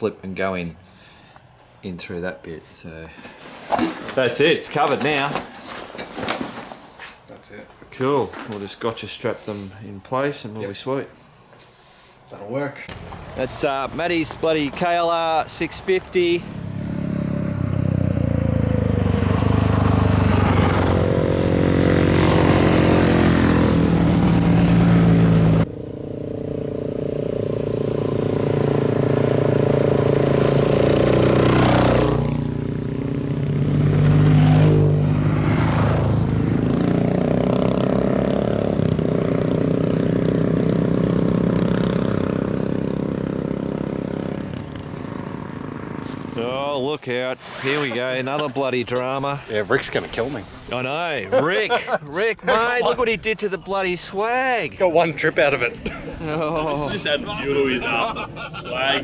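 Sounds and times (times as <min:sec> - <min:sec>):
motorcycle engine running: 0:16.4 - 0:46.4.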